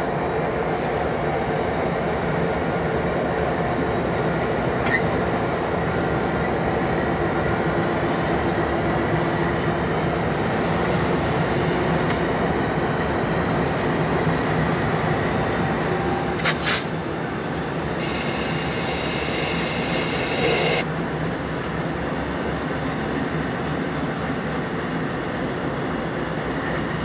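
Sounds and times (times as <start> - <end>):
diesel locomotive engines droning: 0.0 - 27.0
train wheels rumbling: 14.0 - 20.8
faint squeal: 18.0 - 20.8.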